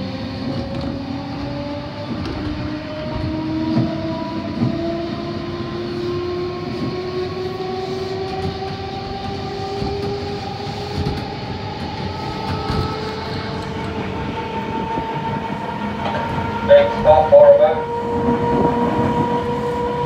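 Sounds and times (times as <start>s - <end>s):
electric train drive whine: 0.0s - 20.0s
train wheels on track: 0.0s - 20.0s.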